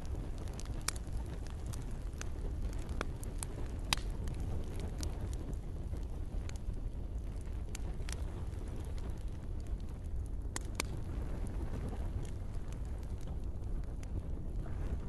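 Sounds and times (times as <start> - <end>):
campfire burning: 0.0 - 15.0.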